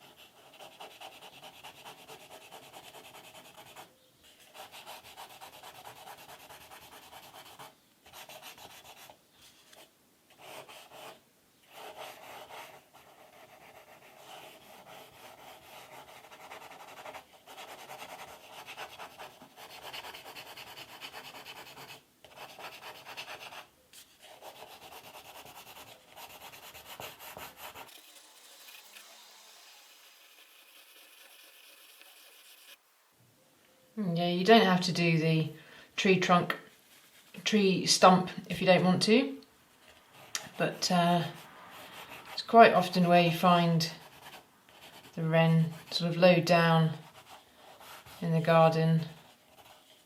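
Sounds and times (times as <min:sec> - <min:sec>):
drawing tool scratching paper: 0:00.0 - 0:09.8, 0:10.4 - 0:32.8, 0:47.0 - 0:48.2.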